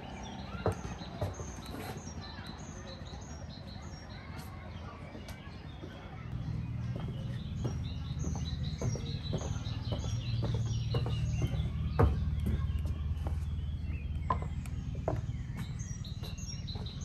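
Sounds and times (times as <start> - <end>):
small birds chirping: 0.0 - 17.0
low rumble with knocks: 6.4 - 17.0.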